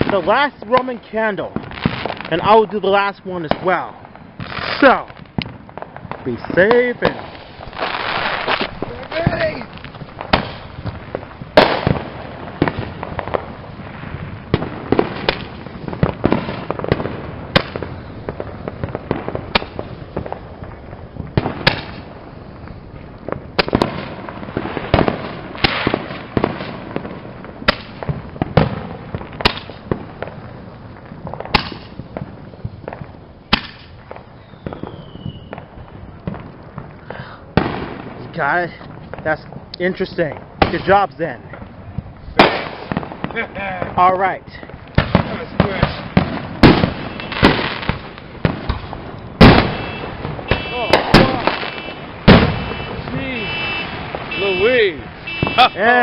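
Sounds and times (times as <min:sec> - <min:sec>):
firecracker pops: 0:00.0 - 0:02.5, 0:03.4 - 0:56.0
roman candle shots popping: 0:00.0 - 0:56.0
falling whistle: 0:34.4 - 0:35.6.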